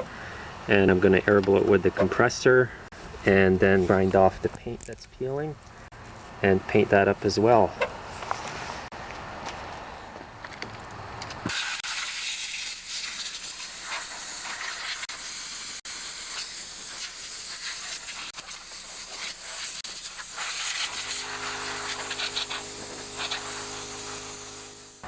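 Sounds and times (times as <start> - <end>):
compressed air blow gun hissing: 11.5 - 25.0
steady low hum: 20.3 - 25.0.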